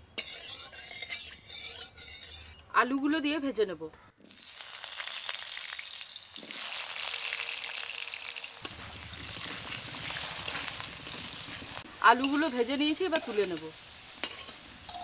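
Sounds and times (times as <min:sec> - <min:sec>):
oil crackles: 0:04.2 - 0:11.9
potatoes frying in oil: 0:04.2 - 0:15.0.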